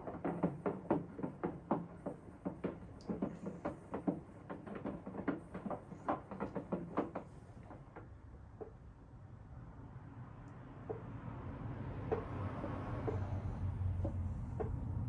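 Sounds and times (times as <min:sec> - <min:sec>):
washing machine knocking: 0:00.0 - 0:08.1.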